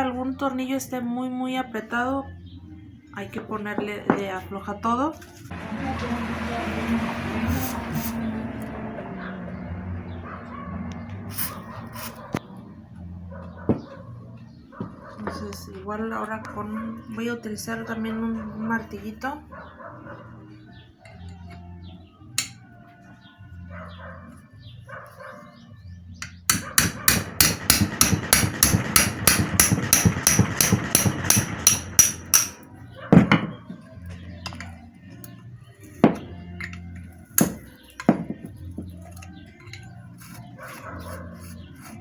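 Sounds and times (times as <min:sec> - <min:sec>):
small hammer striking metal: 0:26.2 - 0:32.6.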